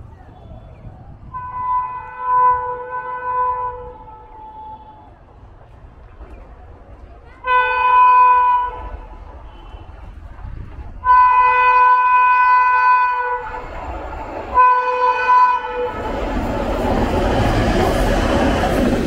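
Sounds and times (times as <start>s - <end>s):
train approaching at speed: 0.0s - 19.0s
train horn blowing: 1.3s - 5.0s, 7.4s - 9.9s, 11.0s - 13.7s, 14.6s - 16.2s.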